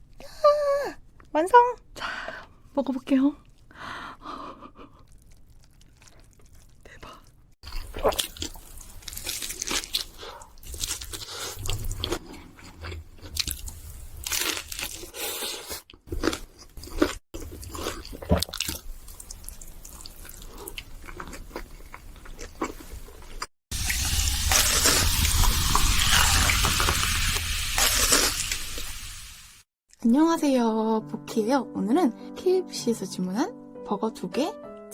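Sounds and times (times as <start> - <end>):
person chewing and smacking: 5.0 - 6.8, 7.7 - 23.5.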